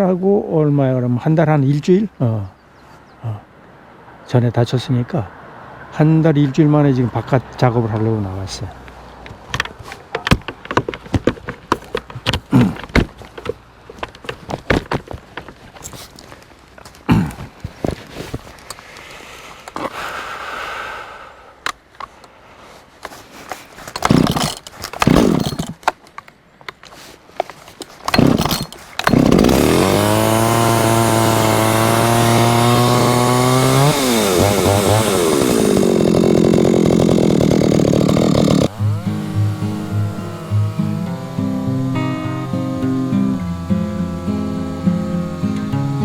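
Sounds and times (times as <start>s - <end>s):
starter cord pulls: 23.0s - 46.0s
chainsaw engine running at high revs: 24.0s - 25.7s, 28.1s - 46.0s.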